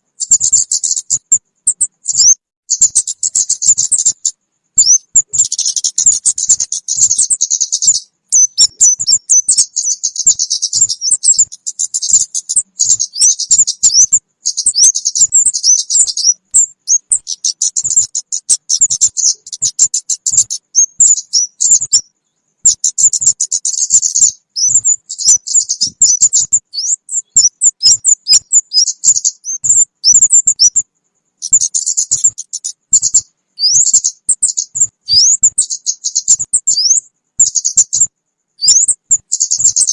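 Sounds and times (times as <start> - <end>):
birds calling with high chirps: 0.0 - 39.9.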